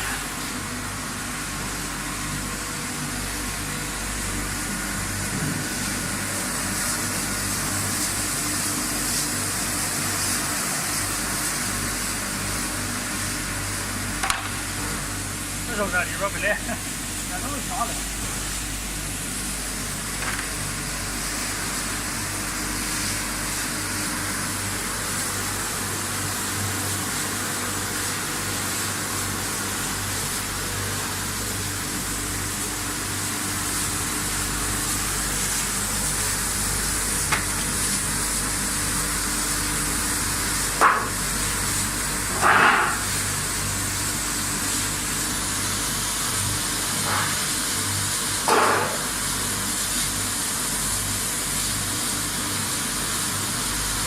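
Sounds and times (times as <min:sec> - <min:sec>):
washing machine motor hum: 0:00.0 - 0:54.0
water spraying: 0:14.5 - 0:42.3.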